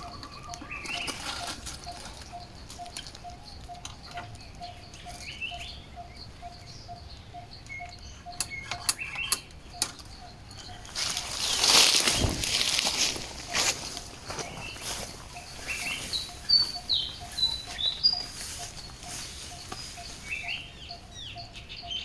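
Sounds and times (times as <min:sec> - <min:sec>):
bird repeating low note: 0:00.0 - 0:22.0
rising bird chirps: 0:00.0 - 0:22.0
sharp clicks: 0:07.6 - 0:10.2.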